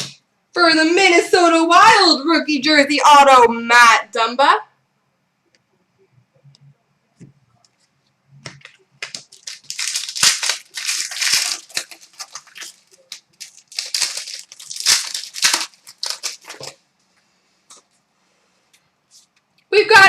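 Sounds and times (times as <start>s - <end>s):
wrapper tearing and crinkling: 9.0s - 16.8s.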